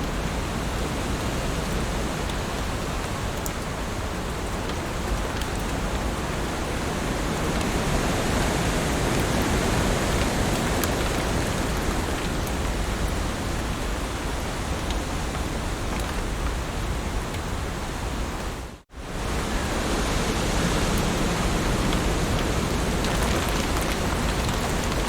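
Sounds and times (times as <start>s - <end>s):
heavy rain hissing: 0.0s - 25.0s
water drips ticking: 21.8s - 25.0s.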